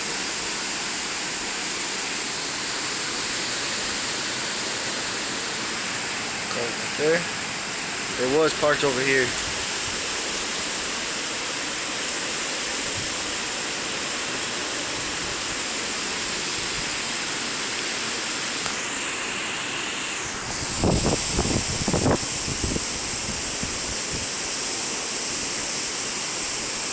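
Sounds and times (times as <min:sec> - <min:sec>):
heavy rain and wind: 0:00.0 - 0:26.9
wind buffeting microphone: 0:20.4 - 0:24.4.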